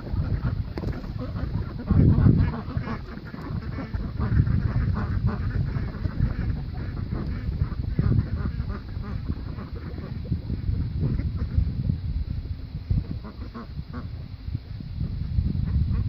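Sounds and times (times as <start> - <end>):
ducks quacking: 0.0 - 11.8, 13.0 - 14.2.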